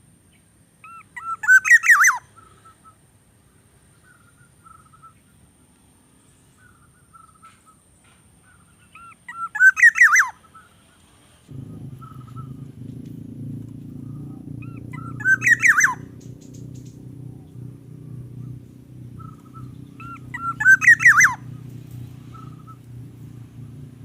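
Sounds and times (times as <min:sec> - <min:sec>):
bird calling: 0:00.8 - 0:03.1, 0:03.8 - 0:05.5, 0:06.4 - 0:12.8, 0:13.6 - 0:23.1.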